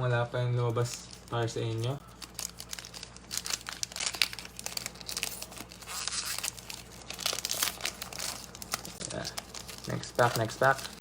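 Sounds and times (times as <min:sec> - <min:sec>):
plastic wrapper crinkling and tearing: 0:00.8 - 0:11.0.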